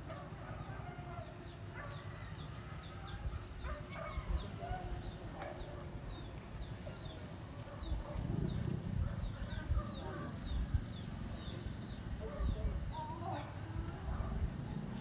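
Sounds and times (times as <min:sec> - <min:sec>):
steady low rumble: 0:07.4 - 0:13.0.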